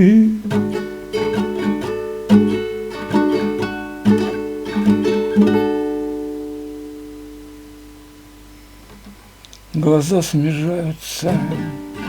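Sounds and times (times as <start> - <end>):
person singing: 0.0 - 5.7, 9.7 - 12.0
acoustic guitar chords: 0.0 - 12.0.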